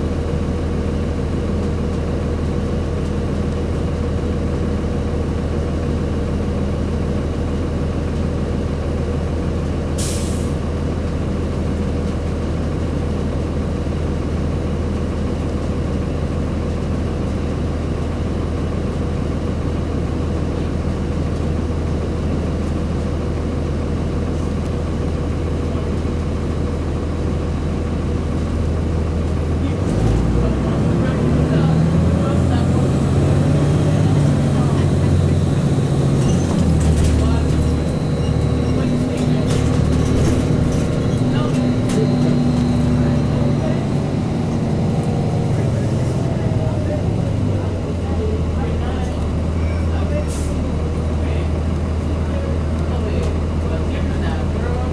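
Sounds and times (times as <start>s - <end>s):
bus diesel engine idling: 0.0s - 54.9s
air brake hiss: 10.0s - 10.6s.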